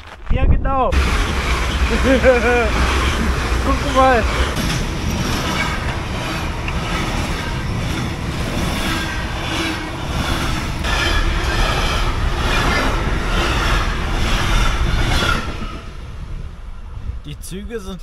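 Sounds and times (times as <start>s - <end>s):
passenger train passing: 0.9s - 18.0s.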